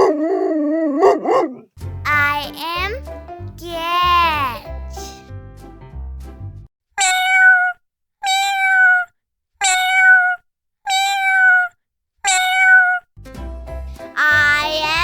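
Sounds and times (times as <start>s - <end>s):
cat meowing: 7.0s - 13.0s, 14.2s - 15.0s.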